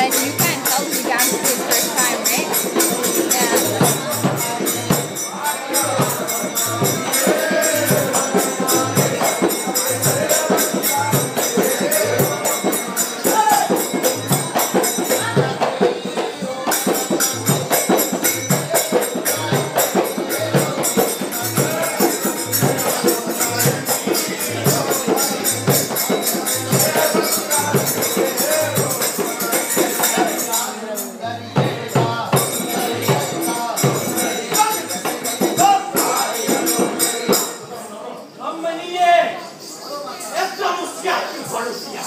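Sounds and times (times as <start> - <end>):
drum beating steady rhythm: 0.0 - 37.7
jingling percussion: 0.0 - 42.0.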